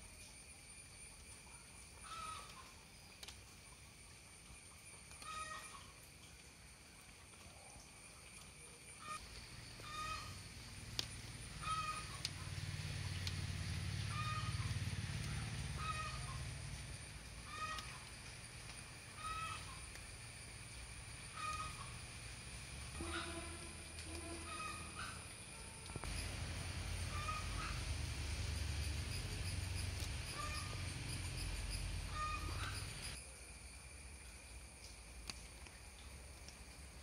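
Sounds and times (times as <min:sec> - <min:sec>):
low rumble: 0:26.0 - 0:33.2.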